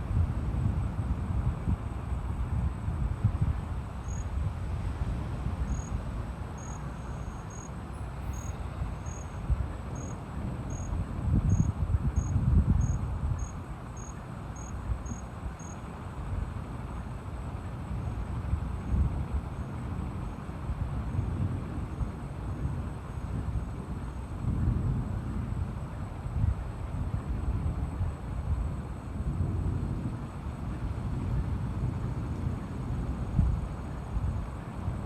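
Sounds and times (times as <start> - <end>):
storm wind and rain rumbling: 0.0 - 35.0
cricket chirping: 4.0 - 4.4, 5.6 - 15.9.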